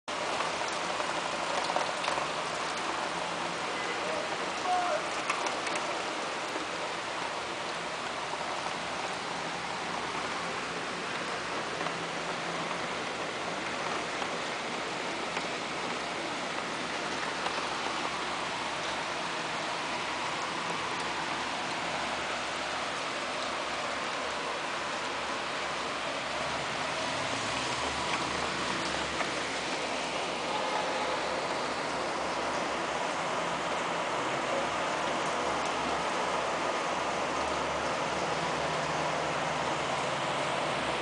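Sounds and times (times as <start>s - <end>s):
sharp raindrop taps: 0.1s - 21.9s, 25.8s - 33.9s
heavy rain on pavement and cars: 0.1s - 41.0s.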